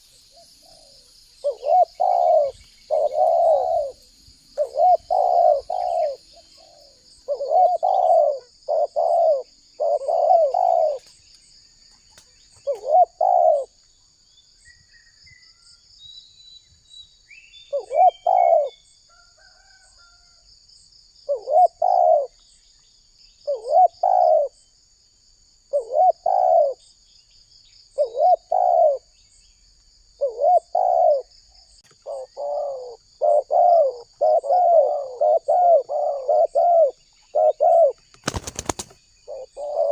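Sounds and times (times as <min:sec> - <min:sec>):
dove cooing: 0:00.0 - 0:11.2, 0:12.6 - 0:13.8, 0:17.7 - 0:18.8, 0:21.3 - 0:22.4, 0:23.5 - 0:24.6, 0:25.7 - 0:26.8, 0:28.0 - 0:29.1, 0:30.2 - 0:31.3, 0:31.9 - 0:39.9
small birds chirping: 0:00.0 - 0:19.0, 0:25.7 - 0:39.9.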